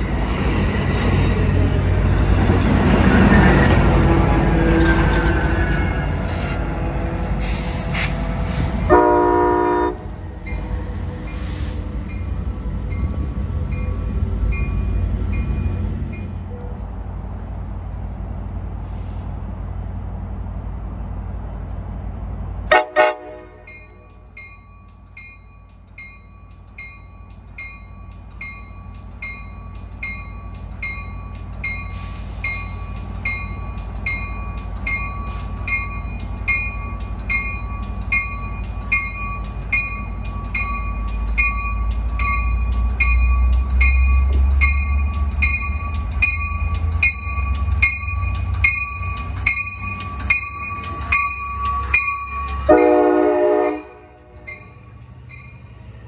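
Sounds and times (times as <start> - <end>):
train rumble: 0.0 - 56.0
warning bell ringing: 23.7 - 55.8.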